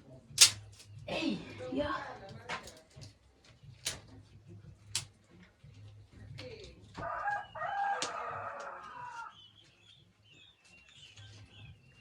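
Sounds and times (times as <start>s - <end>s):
rooster crowing: 7.0s - 9.4s.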